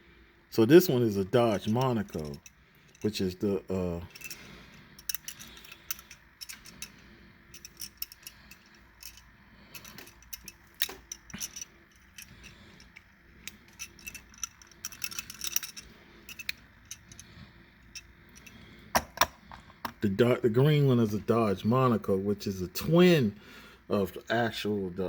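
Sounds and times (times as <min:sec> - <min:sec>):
toy cars clicking: 0:04.1 - 0:19.1.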